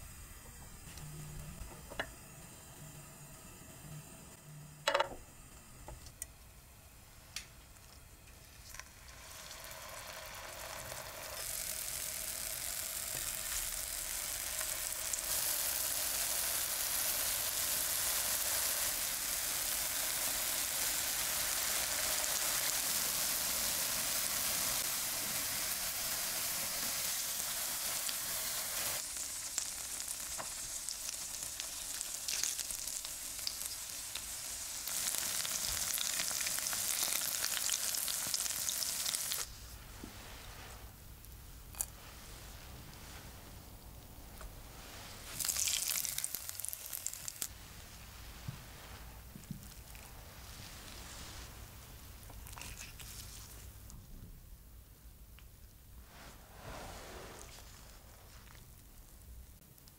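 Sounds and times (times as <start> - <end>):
pancakes sizzling in oil: 7.8 - 39.5, 44.8 - 47.5.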